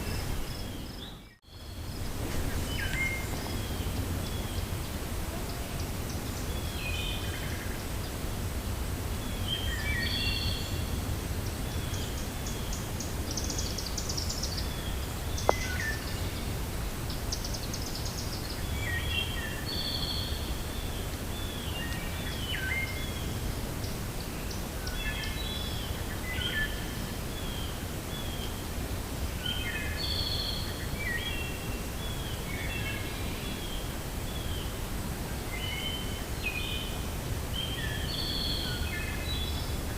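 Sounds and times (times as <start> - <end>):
birds chirping: 0.0 - 5.1
wind through forest: 0.0 - 39.9.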